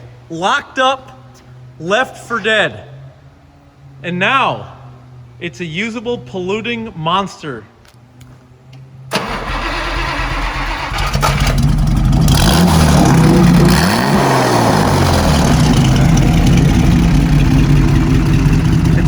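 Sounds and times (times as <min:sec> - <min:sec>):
car engine starting and revving: 0:09.1 - 0:19.0.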